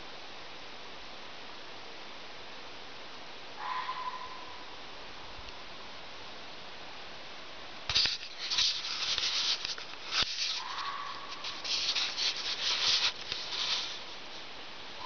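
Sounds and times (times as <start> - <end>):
scratchy rubbing on microphone: 7.9 - 14.4.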